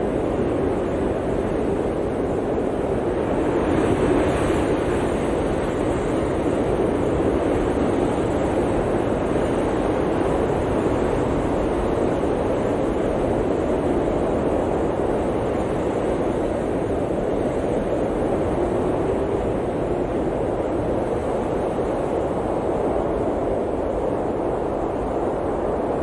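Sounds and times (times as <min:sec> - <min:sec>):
blizzard wind blowing: 0:00.0 - 0:26.0.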